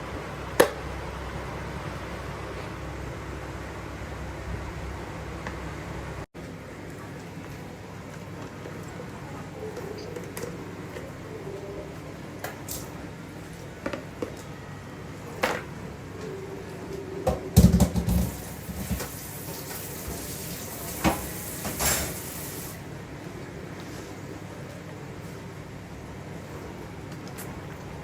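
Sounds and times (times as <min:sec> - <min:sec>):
objects knocking and clattering: 0:17.3 - 0:19.1.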